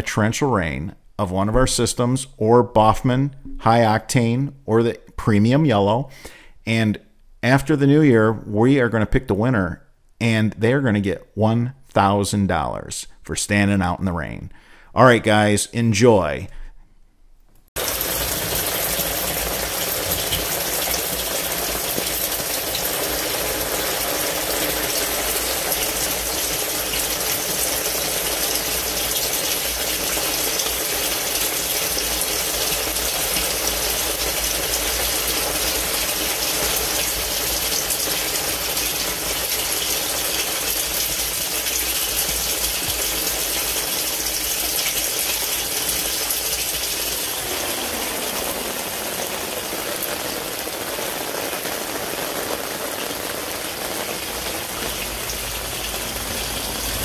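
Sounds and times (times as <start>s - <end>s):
torrential rain: 17.8s - 57.0s
water rushing through drainage: 17.8s - 57.0s.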